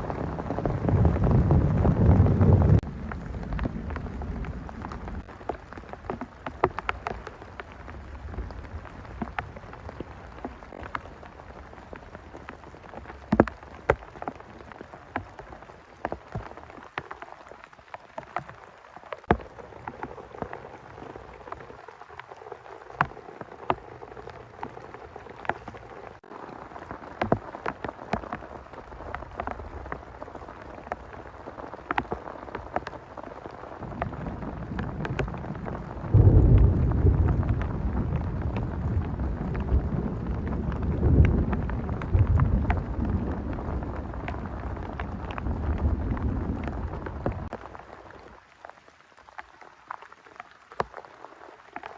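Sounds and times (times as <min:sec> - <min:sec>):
low thunder rumble: 0:00.0 - 0:05.3, 0:33.8 - 0:47.5
large raindrops tapping: 0:00.0 - 0:51.9
rain falling: 0:00.0 - 0:51.9.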